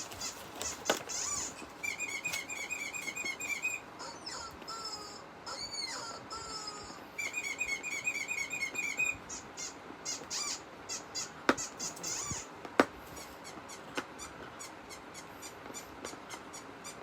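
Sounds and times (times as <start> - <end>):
high chirping: 0.0 - 12.5.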